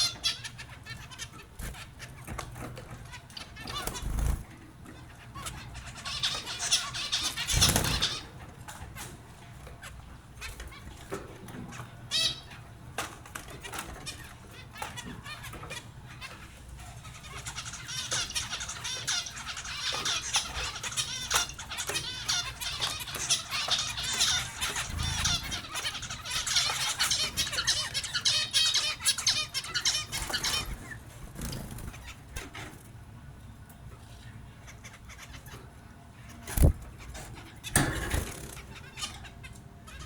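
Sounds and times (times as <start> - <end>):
finches chirping and twittering: 0.0 - 40.0.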